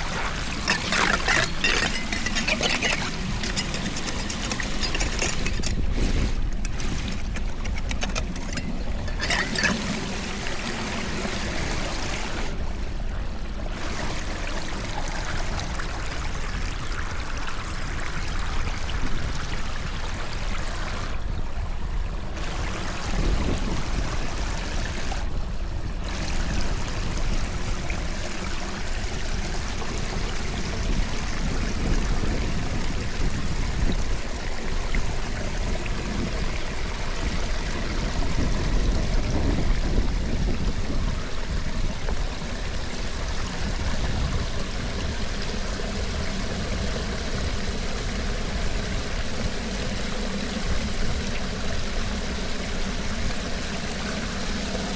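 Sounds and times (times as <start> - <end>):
water rushing into drain: 0.0 - 7.2, 9.1 - 12.6, 26.0 - 54.9.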